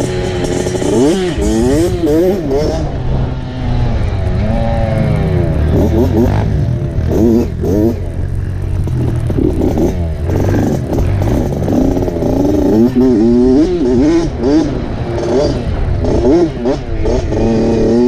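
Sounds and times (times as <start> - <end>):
clatter: 0.0 - 2.9, 5.7 - 18.0
dirt bike engine revving: 0.0 - 18.0.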